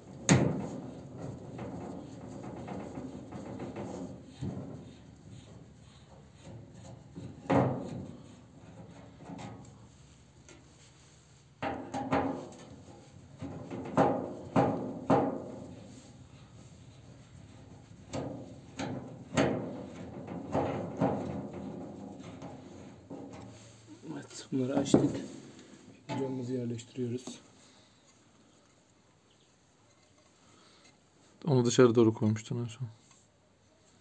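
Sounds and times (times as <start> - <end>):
cast iron parts knocking and clanking: 0.0 - 10.6, 11.6 - 27.4.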